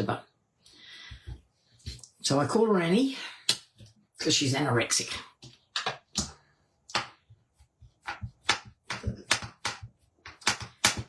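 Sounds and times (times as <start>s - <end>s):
plastic supplies clicking: 8.5s - 11.0s.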